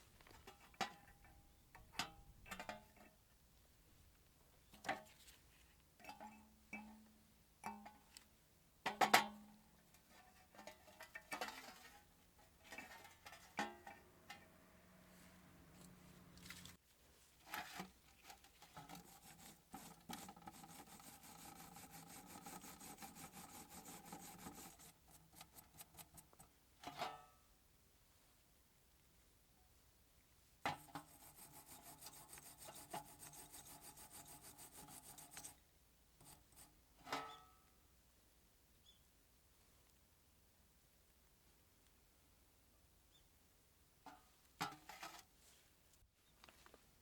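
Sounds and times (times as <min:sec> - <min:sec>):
fast scraping ticks: 0:18.9 - 0:26.4, 0:30.8 - 0:35.6.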